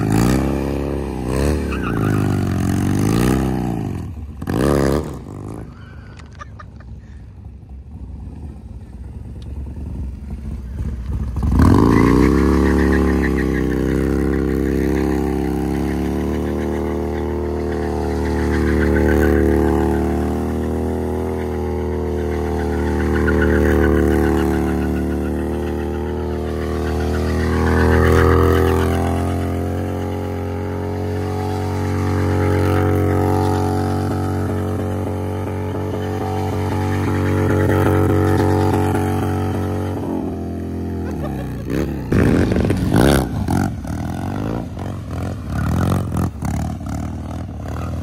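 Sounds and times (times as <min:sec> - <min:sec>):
motorcycle engine revving: 0:00.0 - 0:06.0, 0:07.4 - 0:48.0.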